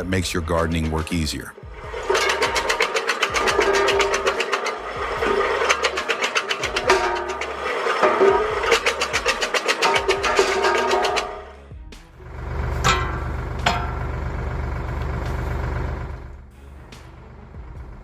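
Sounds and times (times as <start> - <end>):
branch chopper motor clattering: 0.0 - 11.5
background music: 0.0 - 18.0.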